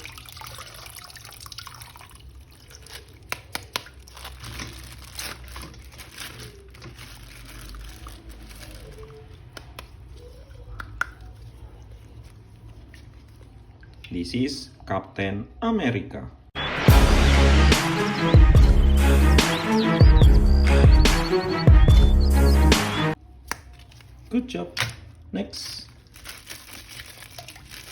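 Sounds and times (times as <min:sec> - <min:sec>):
water dripping and trickling: 0:00.0 - 0:09.3, 0:26.2 - 0:27.9.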